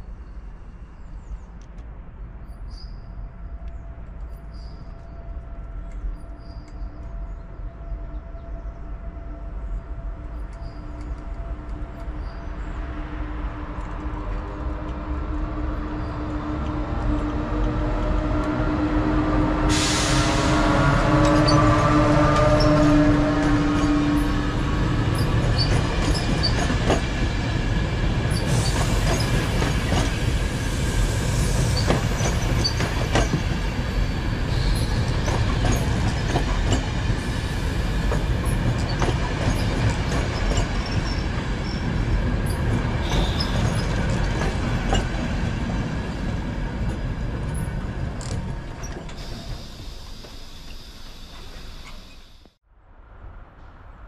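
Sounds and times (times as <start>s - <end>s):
train rumbling on rails: 0.0s - 54.0s
high wheel squeals: 19.7s - 26.8s, 31.4s - 36.5s, 38.4s - 45.0s, 48.8s - 52.5s
wheels clacking over rail joints: 21.2s - 30.4s, 34.7s - 37.2s, 38.0s - 49.7s.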